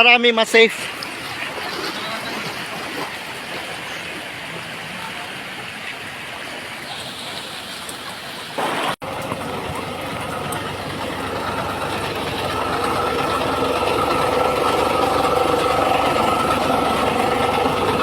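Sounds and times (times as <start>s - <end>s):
floodwater rushing: 0.6s - 18.0s.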